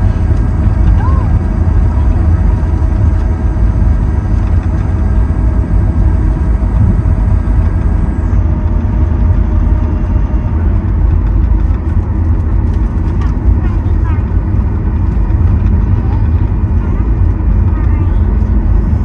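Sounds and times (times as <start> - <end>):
high whine bending down: 0.0 - 8.8
faint steady whining tones: 0.0 - 8.9
aircraft engine rumble: 0.0 - 19.0.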